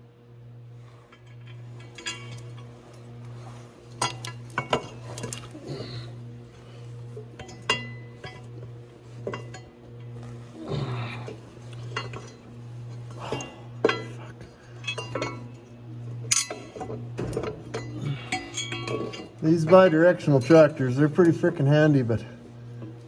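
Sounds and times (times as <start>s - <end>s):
low hum: 0.0s - 23.0s
metal tools clinking: 1.2s - 15.5s, 16.2s - 21.7s.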